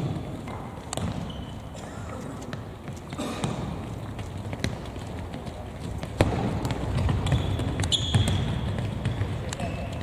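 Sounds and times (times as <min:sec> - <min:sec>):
footsteps on hard court: 0:02.4 - 0:10.0
ball strikes on hard court: 0:06.0 - 0:09.8.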